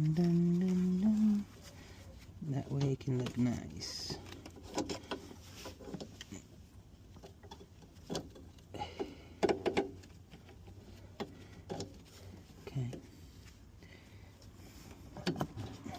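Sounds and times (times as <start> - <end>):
clicks and knocks of cables: 7.1 - 12.0.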